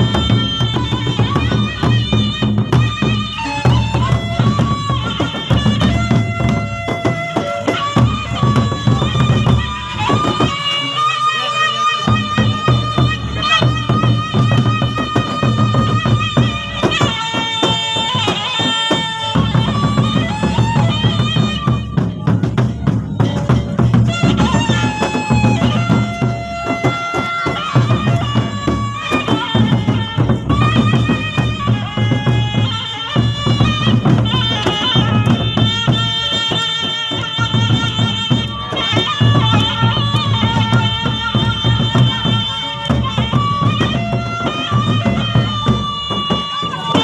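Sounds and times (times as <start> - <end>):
large drums beating: 0.0 - 11.0, 12.0 - 47.0
reedy wind instrument melody: 0.0 - 47.0.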